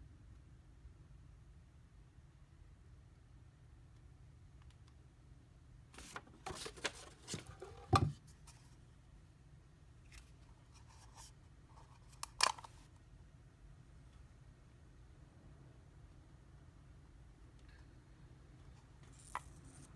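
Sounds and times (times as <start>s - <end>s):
rustling and scraping: 6.0s - 8.8s.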